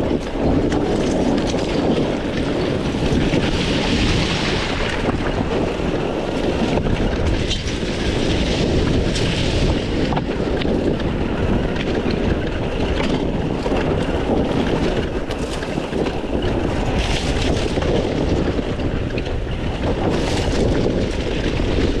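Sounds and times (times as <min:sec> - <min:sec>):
dirt bike engine running: 0:00.0 - 0:22.0
knocks and clatter from terrain: 0:00.0 - 0:22.0
wind buffeting microphone: 0:00.0 - 0:22.0.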